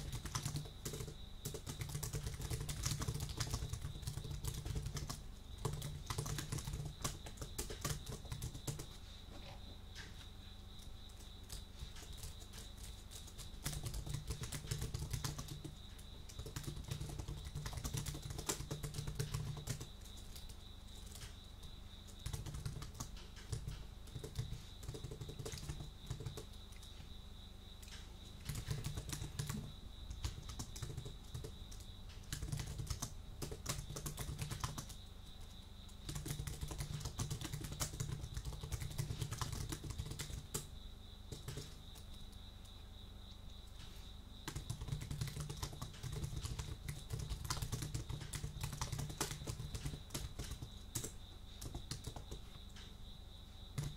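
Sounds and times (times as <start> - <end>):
keyboard typing clicks: 0.0 - 8.9, 13.6 - 20.5, 22.1 - 26.9, 27.8 - 35.0, 35.9 - 40.7, 41.3 - 42.4, 44.5 - 52.9.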